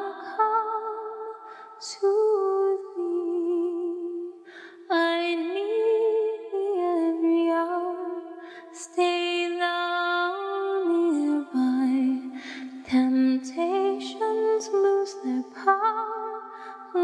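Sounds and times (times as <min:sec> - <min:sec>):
woman singing a hymn: 0:00.0 - 0:01.1, 0:01.8 - 0:17.0
singer breathing: 0:01.4 - 0:01.8, 0:04.4 - 0:04.9, 0:08.4 - 0:08.8, 0:12.3 - 0:12.8, 0:16.4 - 0:16.9.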